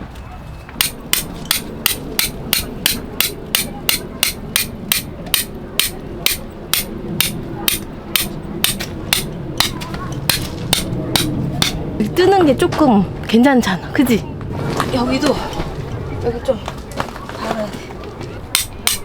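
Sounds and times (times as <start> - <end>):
hammer striking tent peg: 0.8 - 11.8, 18.5 - 19.0.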